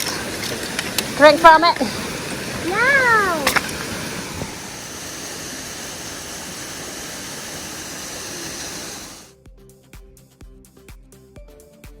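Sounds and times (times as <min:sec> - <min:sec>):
waterfall rushing: 0:00.0 - 0:09.3
background music with steady beat: 0:09.3 - 0:12.0.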